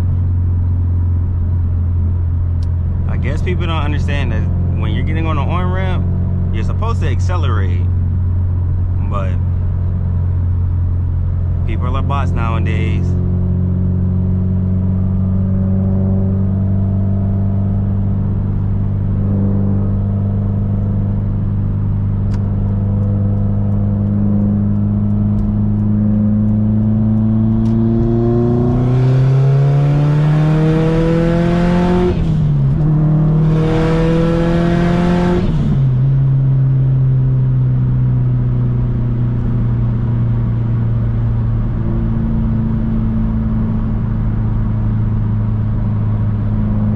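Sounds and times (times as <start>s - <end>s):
car engine accelerating through gears: 13.1s - 46.9s.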